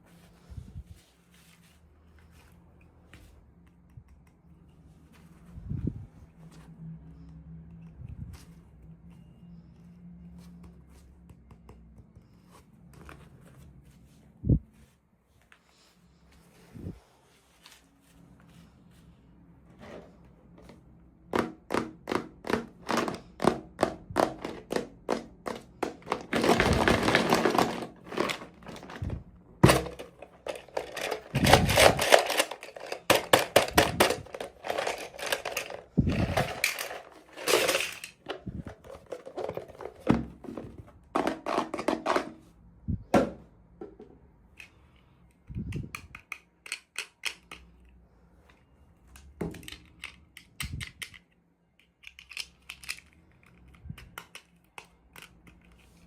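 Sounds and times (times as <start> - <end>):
plastic pieces clicking: 21.7 - 40.1, 45.7 - 47.8, 49.5 - 55.8.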